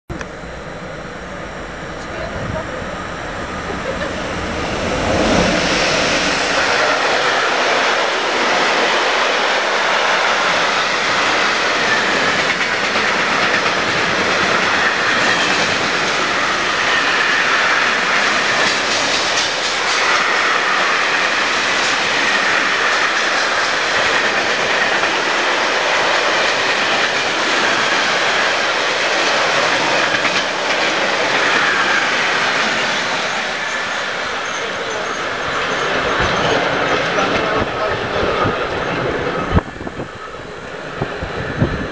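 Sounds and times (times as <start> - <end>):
freight train passing: 0.1 - 41.9.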